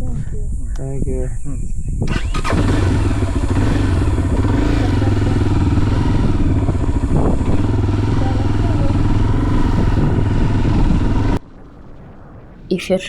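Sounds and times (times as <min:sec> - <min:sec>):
motorcycle engine running: 0:02.1 - 0:11.4
rushing noise: 0:02.1 - 0:13.0.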